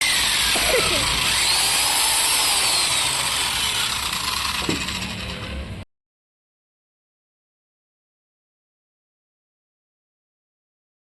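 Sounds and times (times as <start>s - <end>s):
mixer motor whining: 0.0s - 5.8s.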